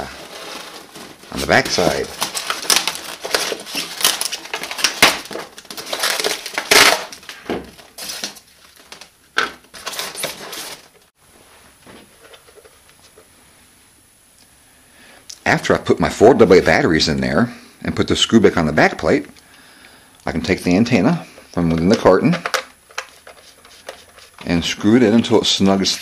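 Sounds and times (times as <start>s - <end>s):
plastic clicks and battery clatter: 21.7s - 24.0s.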